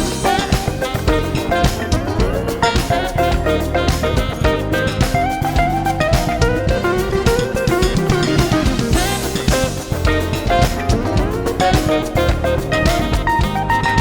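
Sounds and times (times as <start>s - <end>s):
lead guitar line: 0.0s - 14.0s
smooth jazz band playing: 0.0s - 14.0s.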